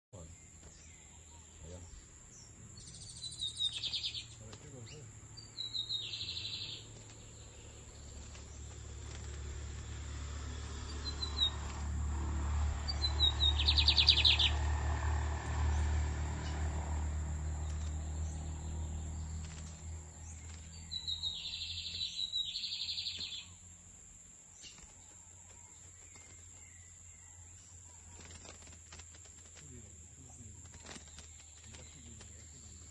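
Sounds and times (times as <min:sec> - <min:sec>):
bird singing trilled phrases: 0:00.2 - 0:08.8, 0:10.9 - 0:11.7, 0:12.8 - 0:14.6, 0:17.4 - 0:23.7, 0:29.2 - 0:32.9.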